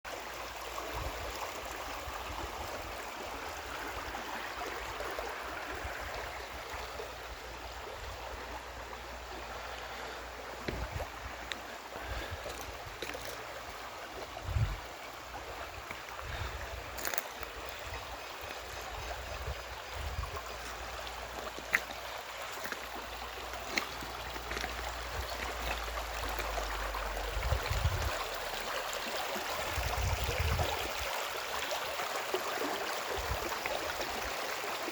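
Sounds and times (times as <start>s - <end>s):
stream water flowing: 0.1s - 34.9s.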